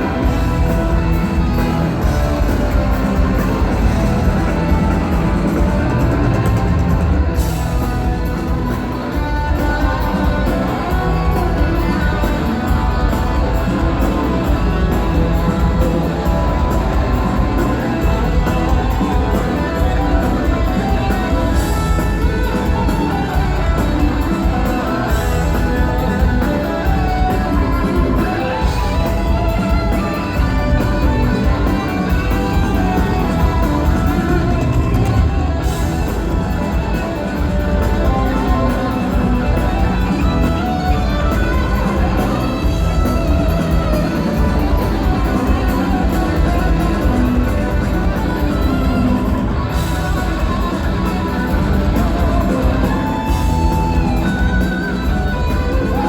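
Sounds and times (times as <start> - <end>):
electric guitar: 0.0 - 56.0
live rock band playing: 0.0 - 56.0.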